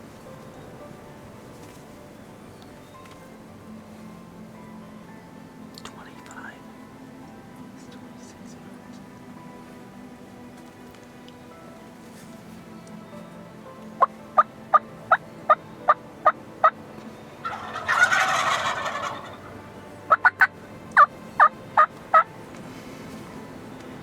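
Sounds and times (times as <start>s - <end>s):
turkey gobbling: 14.0s - 16.8s, 17.4s - 22.2s
turkey yelps: 17.4s - 19.5s, 20.1s - 20.4s
turkey clucks: 17.4s - 22.2s.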